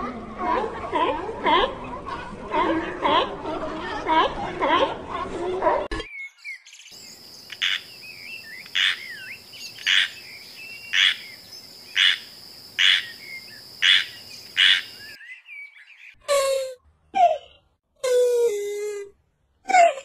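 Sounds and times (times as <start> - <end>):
birds chirping: 6.0 - 16.2
high insect drone: 7.0 - 15.1.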